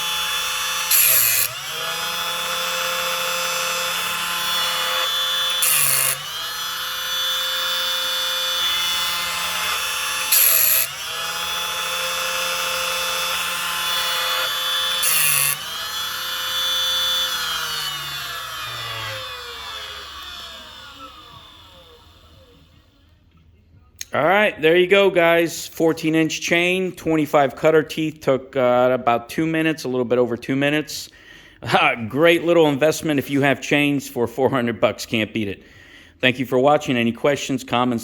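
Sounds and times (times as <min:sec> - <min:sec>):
grinding wheel bursts: 0:00.0 - 0:22.9
electric motor spinning: 0:00.0 - 0:23.1.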